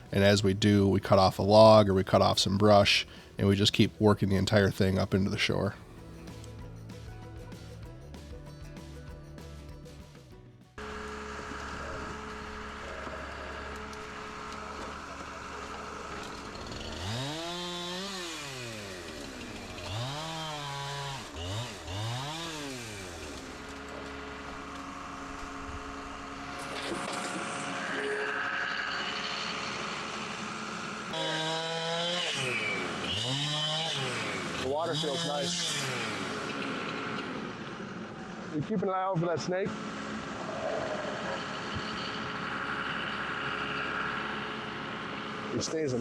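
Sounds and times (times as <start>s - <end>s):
engine hum: 0.0s - 8.0s, 10.8s - 38.8s, 39.7s - 46.0s
chainsaw revving: 10.8s - 38.6s, 39.6s - 46.0s.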